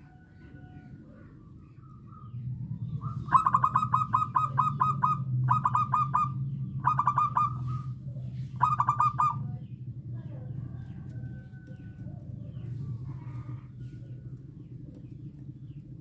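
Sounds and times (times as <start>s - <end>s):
steady low hum: 0.0s - 16.0s
dove song staccato notes: 3.0s - 7.9s, 8.6s - 9.5s.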